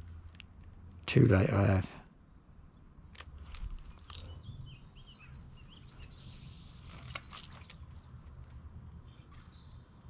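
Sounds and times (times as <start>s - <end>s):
small birds singing: 0.0s - 10.0s
sharp clicks: 3.0s - 4.4s.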